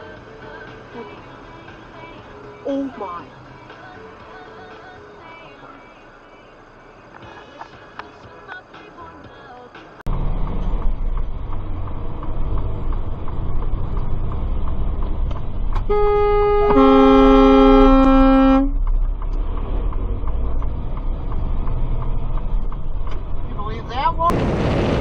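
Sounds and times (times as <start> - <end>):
vehicle road and engine noise: 0.0 - 25.0
vehicle horn blaring: 15.9 - 18.8.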